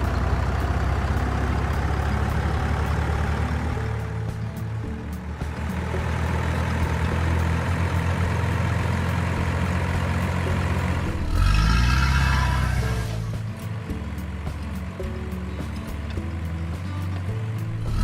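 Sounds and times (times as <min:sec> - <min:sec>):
diesel engine idling: 0:00.0 - 0:18.0
engine whine: 0:00.0 - 0:18.0.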